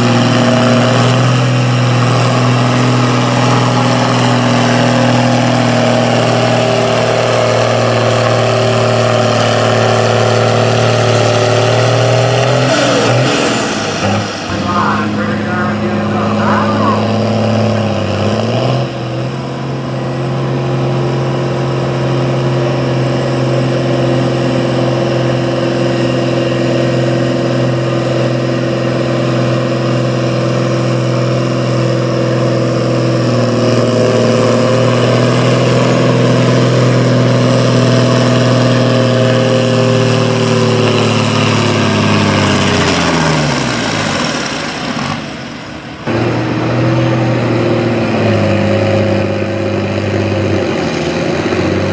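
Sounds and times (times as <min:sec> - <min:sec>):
tractor engine running hard: 0:00.0 - 0:51.9.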